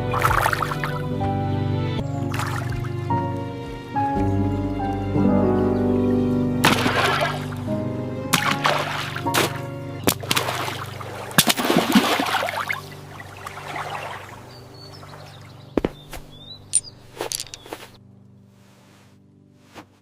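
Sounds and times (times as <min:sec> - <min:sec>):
water pouring and splashing: 0:00.0 - 0:01.0, 0:02.2 - 0:03.1, 0:06.6 - 0:07.7, 0:08.3 - 0:15.6
bird chirps: 0:13.5 - 0:18.0.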